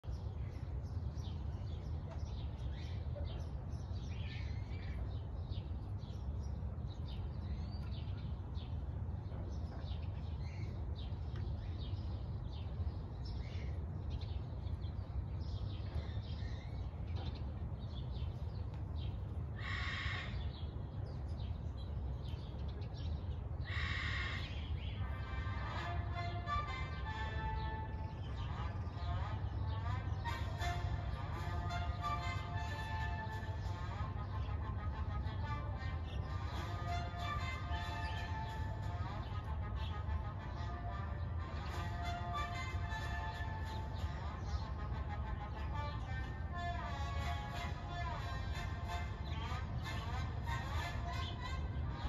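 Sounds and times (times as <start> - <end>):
birds chirping: 0.0 - 52.0
loud noisy bird calls: 19.0 - 52.0.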